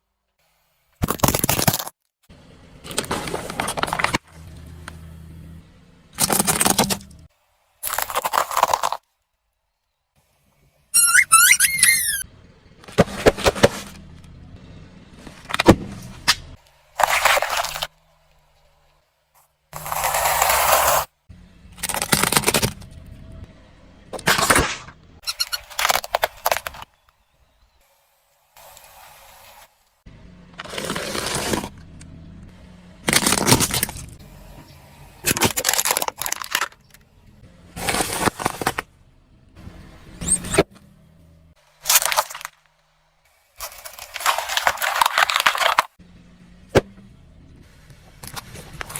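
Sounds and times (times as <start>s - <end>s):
car engine running low: 2.2s - 7.3s, 12.2s - 16.9s, 21.3s - 25.2s, 30.0s - 41.8s, 45.0s - 48.9s
objects crunching under car tyres: 2.8s - 4.4s, 6.2s - 7.2s, 7.8s - 9.1s, 12.8s - 14.0s, 15.2s - 18.0s, 19.8s - 21.1s, 24.2s - 27.1s, 30.6s - 31.8s, 33.0s - 34.2s, 35.2s - 37.1s, 37.7s - 38.9s, 41.7s - 42.8s, 43.6s - 46.0s
tyre crushing objects: 33.1s - 34.2s.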